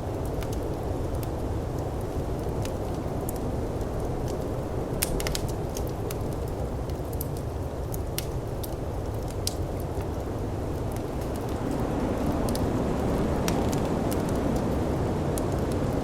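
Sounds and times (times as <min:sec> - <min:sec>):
wood fire crackling: 0:00.0 - 0:16.0
snowstorm wind rushing: 0:10.1 - 0:16.0.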